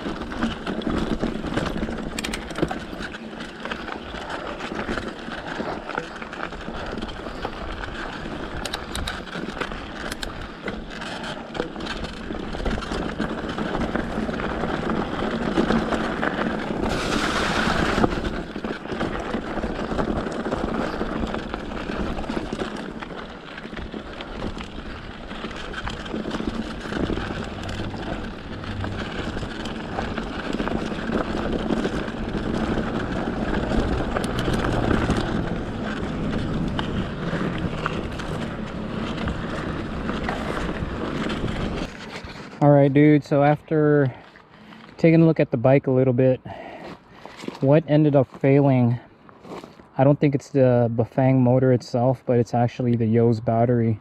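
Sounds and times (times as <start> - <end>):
bike tyre and chassis rattle: 0.0 - 54.0.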